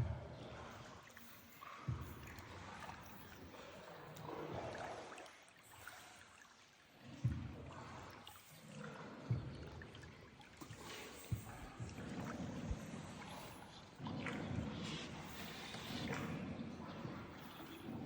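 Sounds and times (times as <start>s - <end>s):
water trickling and lapping: 0.0s - 18.0s.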